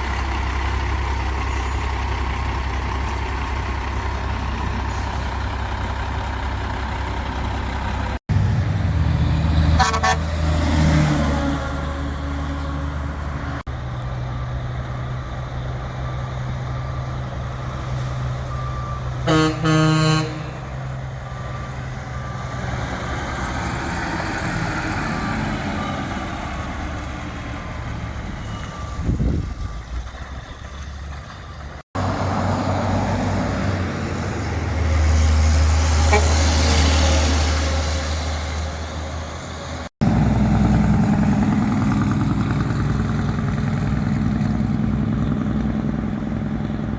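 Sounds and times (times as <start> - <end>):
heavy truck engines passing: 0.0 - 46.9
truck horn blast: 9.7 - 10.6, 19.2 - 20.7, 36.0 - 37.9.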